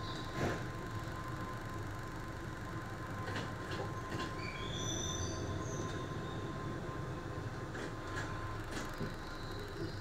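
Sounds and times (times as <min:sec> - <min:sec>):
train rumbling: 0:00.0 - 0:10.0
high-pitched brake squeals: 0:04.4 - 0:06.7.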